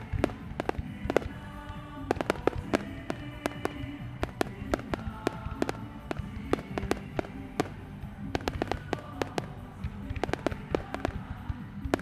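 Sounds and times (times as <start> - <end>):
fireworks bangs and crackles: 0.0 - 12.0
music: 0.0 - 12.0.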